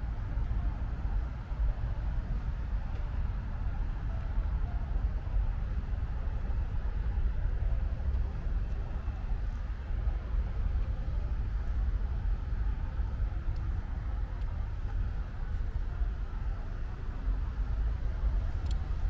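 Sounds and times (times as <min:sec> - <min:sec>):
city traffic rumble: 0:00.0 - 0:19.0
faint raindrop ticks: 0:18.5 - 0:19.0.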